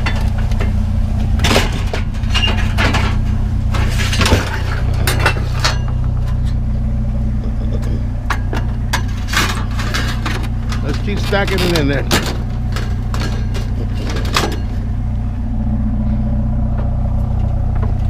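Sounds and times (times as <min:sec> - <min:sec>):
vehicle engine idling: 0:00.0 - 0:18.0
scrap items clinking: 0:08.4 - 0:14.8.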